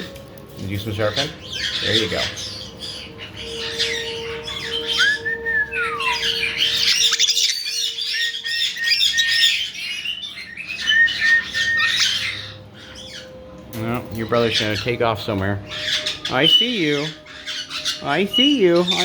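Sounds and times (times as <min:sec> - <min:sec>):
parrots chattering and squawking: 0:00.0 - 0:19.0
whistling: 0:03.7 - 0:13.3.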